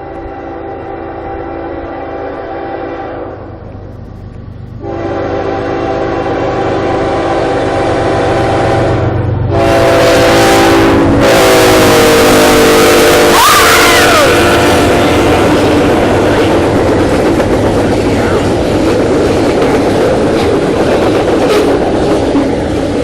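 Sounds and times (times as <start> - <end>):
locomotive air horn blasts: 0.0 - 3.4, 4.8 - 16.4
train passing close by: 0.0 - 23.0.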